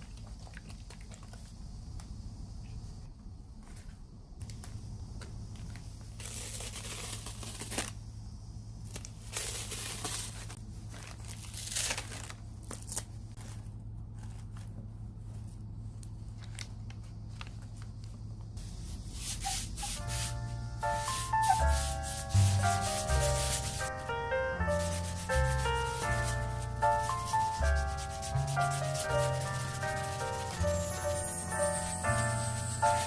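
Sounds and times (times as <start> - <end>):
low steady hum: 0.0 - 33.0
packaging torn and crinkled: 6.2 - 8.0, 8.9 - 13.4
music: 19.8 - 33.0.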